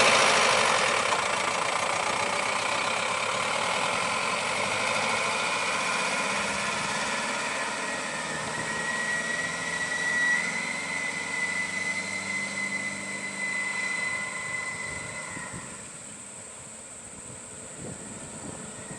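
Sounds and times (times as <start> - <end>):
truck engine running: 0.0 - 18.9
thin steady whine: 5.4 - 18.9.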